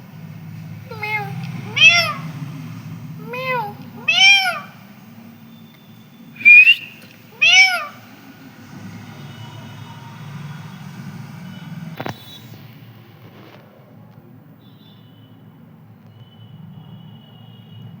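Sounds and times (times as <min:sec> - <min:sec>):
parrot meow-like calls: 0:00.8 - 0:02.4, 0:03.2 - 0:04.8, 0:06.4 - 0:08.1
sharp rising whistle: 0:06.4 - 0:07.0.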